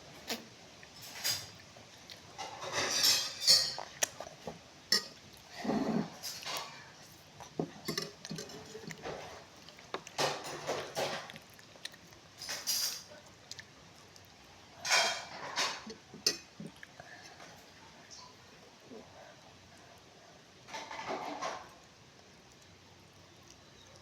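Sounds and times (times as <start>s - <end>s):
cutlery clinking on plate: 2.4s - 3.8s, 7.8s - 9.2s.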